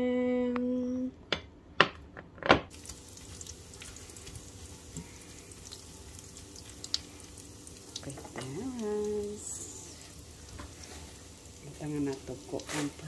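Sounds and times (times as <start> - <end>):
fish frying in oil: 2.7 - 13.0.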